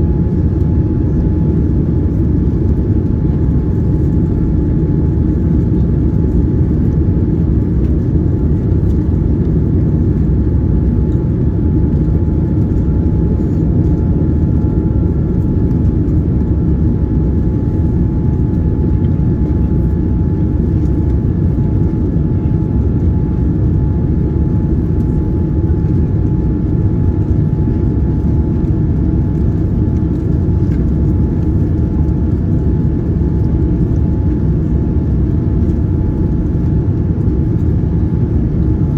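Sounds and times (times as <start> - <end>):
airliner cabin roar: 0.0 - 38.9.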